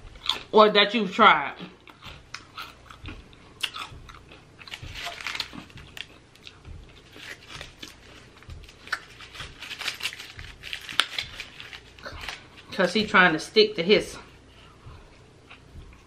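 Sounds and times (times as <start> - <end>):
person chewing: 0.0 - 0.5, 1.6 - 12.7, 14.3 - 16.0
aluminium foil crinkling: 4.6 - 13.0.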